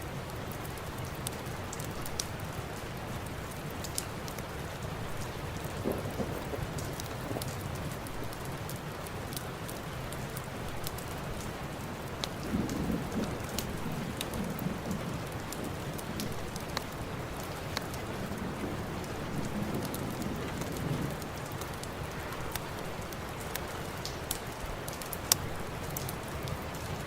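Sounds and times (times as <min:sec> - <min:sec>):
heavy rain: 0:00.0 - 0:27.0
thunder rumbling: 0:04.9 - 0:08.9, 0:11.9 - 0:22.2.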